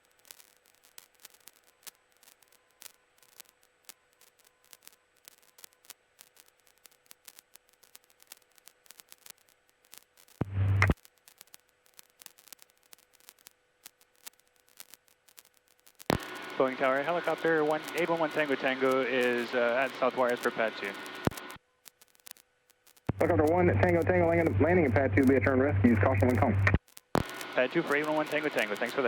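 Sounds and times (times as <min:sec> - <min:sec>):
radio static crackling: 0:00.1 - 0:29.0
burst of radio noise: 0:16.1 - 0:21.6, 0:23.1 - 0:29.0
thin steady hum: 0:23.1 - 0:29.0.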